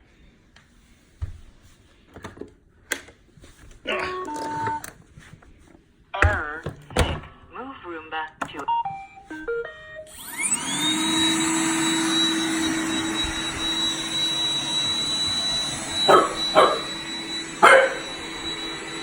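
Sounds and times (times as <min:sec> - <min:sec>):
robot vacuum motor whine: 0:10.1 - 0:19.0.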